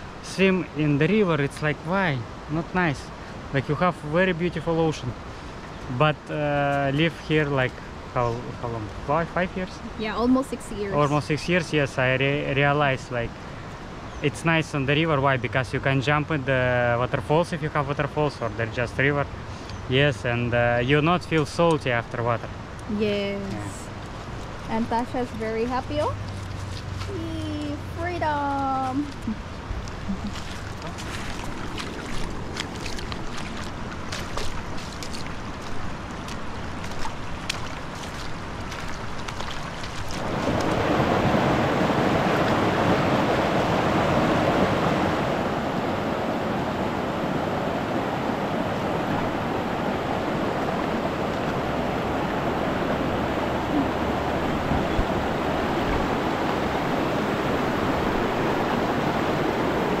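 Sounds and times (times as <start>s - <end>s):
river water rushing: 0.0s - 15.3s, 21.8s - 60.0s
wind on microphone: 29.2s - 60.0s.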